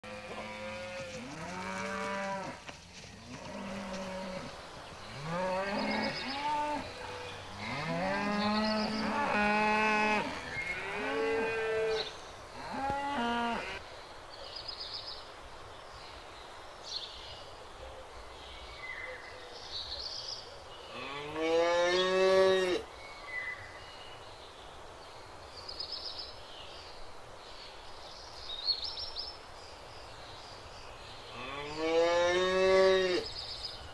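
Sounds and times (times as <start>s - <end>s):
cows mooing: 5.1s - 13.8s.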